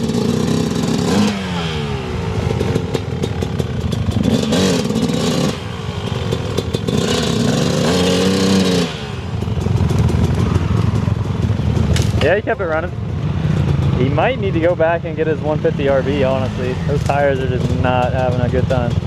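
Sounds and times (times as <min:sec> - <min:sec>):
dirt bike engine revving: 0:00.0 - 0:19.0
clatter: 0:02.4 - 0:12.2, 0:16.6 - 0:19.0.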